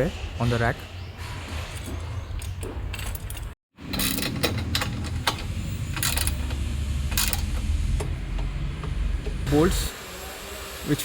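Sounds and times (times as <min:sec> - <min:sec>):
metal hardware clinking: 0:01.8 - 0:09.4.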